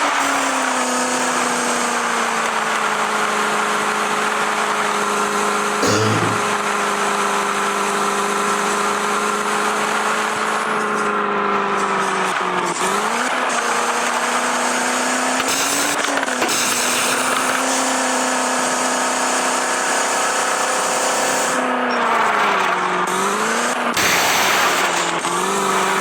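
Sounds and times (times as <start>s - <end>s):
van engine at high revs: 7.0s - 26.0s.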